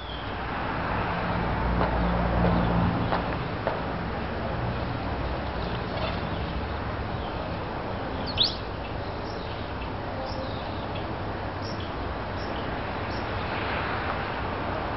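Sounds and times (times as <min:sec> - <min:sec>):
bird chirping: 0:00.0 - 0:00.4, 0:08.1 - 0:13.3
outdoor background hiss: 0:03.2 - 0:14.9.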